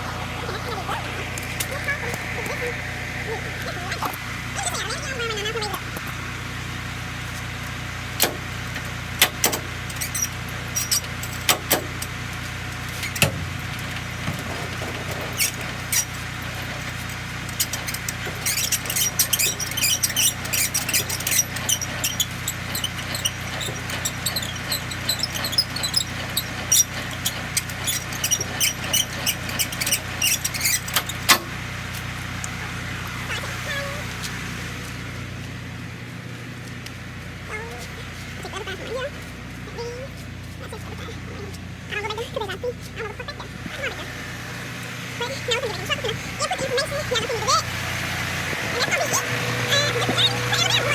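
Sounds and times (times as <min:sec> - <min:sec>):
low engine hum: 0:00.0 - 0:50.9
quick clicks and squeaks: 0:00.3 - 0:06.2, 0:08.2 - 0:34.4, 0:45.2 - 0:47.7, 0:48.5 - 0:50.9
sharp clicks and knocks: 0:08.2 - 0:12.2, 0:12.8 - 0:32.6.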